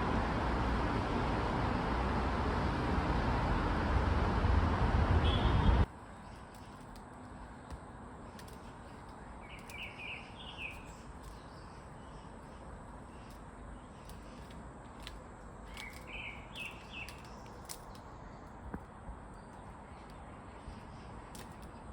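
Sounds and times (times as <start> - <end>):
outdoor background noise: 0.0 - 21.9
small bird chirping: 8.3 - 18.6.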